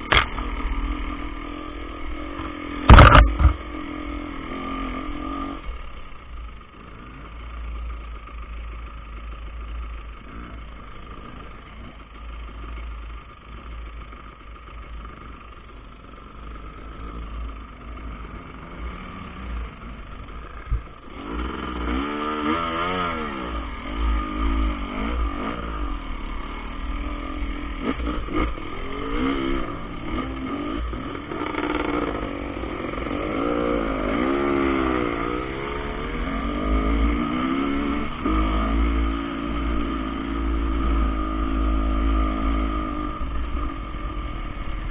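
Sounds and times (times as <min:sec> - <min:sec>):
dirt bike engine revving: 0:00.0 - 0:06.0, 0:18.0 - 0:44.9
sharp knock: 0:02.9 - 0:03.6.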